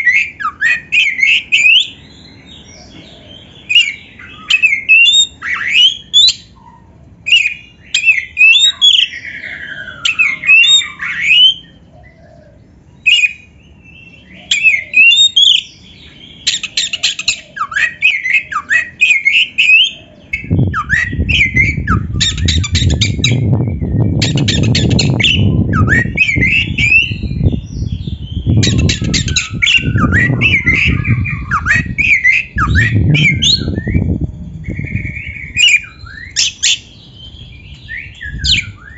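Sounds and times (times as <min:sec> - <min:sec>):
bird singing whistled phrases: 0:00.0 - 0:02.6, 0:03.6 - 0:06.6, 0:07.3 - 0:11.8, 0:13.0 - 0:38.9
bird harsh chattering: 0:14.4 - 0:21.1, 0:22.2 - 0:23.4, 0:24.2 - 0:27.0, 0:28.5 - 0:33.6
steady low noise: 0:20.2 - 0:38.9.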